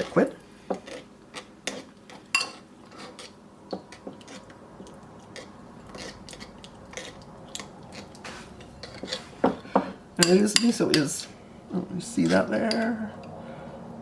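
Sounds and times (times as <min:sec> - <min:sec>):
utensil stirring marinade in bowl: 0:00.0 - 0:13.4
utensil clinking against bowl: 0:08.8 - 0:11.3, 0:12.2 - 0:13.0.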